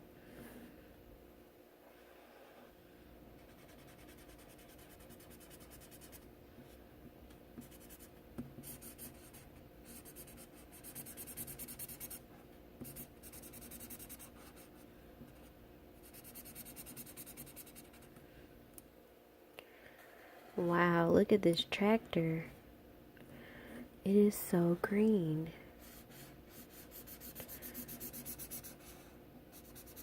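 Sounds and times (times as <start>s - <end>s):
scribbling on paper: 3.4s - 6.2s, 7.6s - 12.2s, 12.8s - 14.7s, 16.0s - 18.1s, 25.8s - 30.0s.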